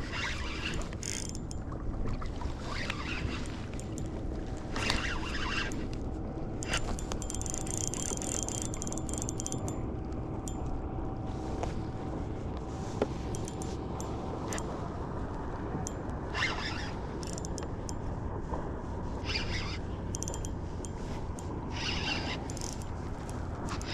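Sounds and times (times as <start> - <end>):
faint steady hum: 0.0 - 23.9
water noise: 0.0 - 23.9
wind: 0.0 - 23.9
light clicks: 17.2 - 18.0, 20.1 - 23.9.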